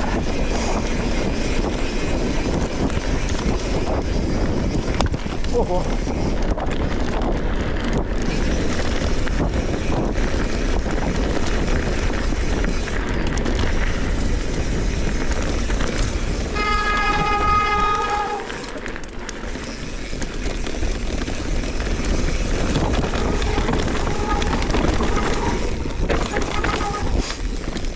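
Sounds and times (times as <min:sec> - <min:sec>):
tyres rolling on dirt: 0:00.0 - 0:27.9
wind on microphone: 0:00.0 - 0:27.9
high pitched squeal: 0:15.6 - 0:18.8.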